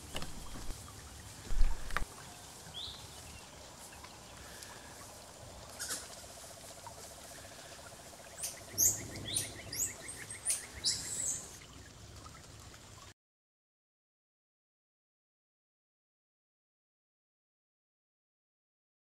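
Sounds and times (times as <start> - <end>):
birds calling: 0.0 - 11.9.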